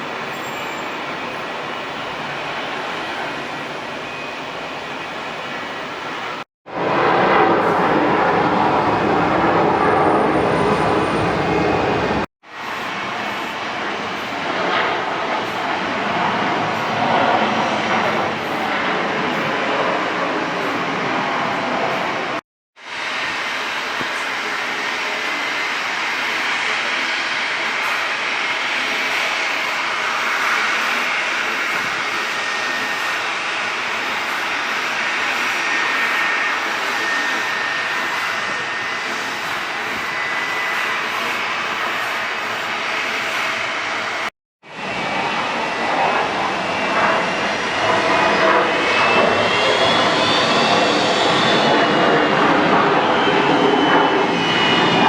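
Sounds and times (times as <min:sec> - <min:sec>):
jet engines rushing: 0:00.0 - 0:55.0.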